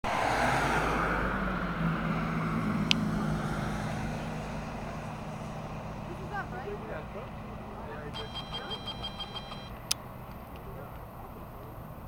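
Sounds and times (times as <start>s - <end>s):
cars accelerating hard: 0.0s - 8.2s
road noise: 0.0s - 12.0s.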